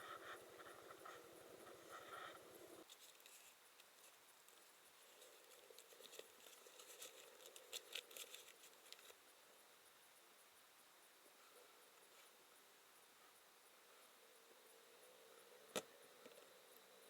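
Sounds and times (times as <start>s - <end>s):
faint clicks and rustling: 0.0s - 9.2s.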